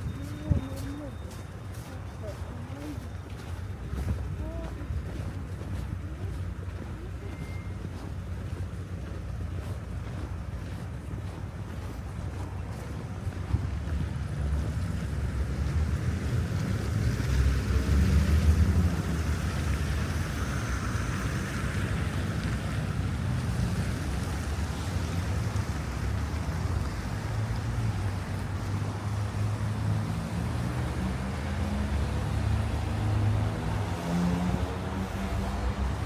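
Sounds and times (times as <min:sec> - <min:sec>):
city street traffic: 0:00.0 - 0:36.0
wind rumbling on microphone: 0:07.9 - 0:36.0
vehicle passing: 0:13.7 - 0:36.0.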